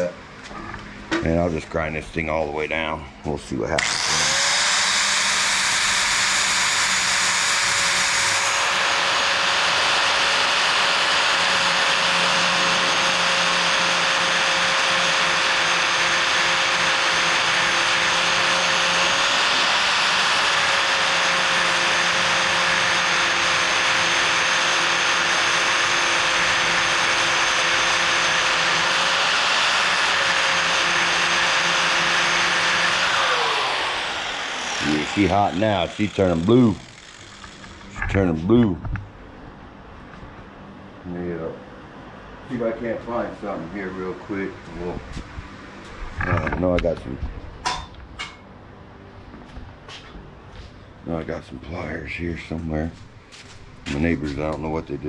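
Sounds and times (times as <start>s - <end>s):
electric grinder grinding metal: 3.8s - 38.4s.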